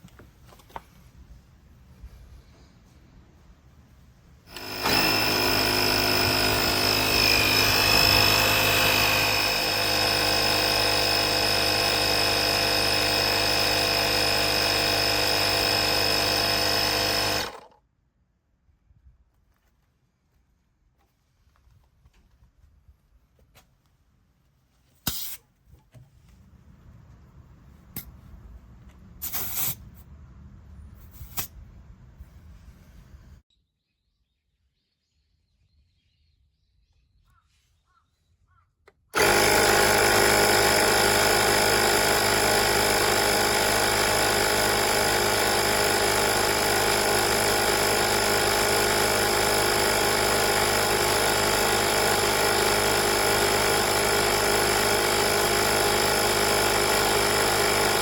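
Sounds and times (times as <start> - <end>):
air compressor droning: 4.5 - 17.7, 39.2 - 58.0.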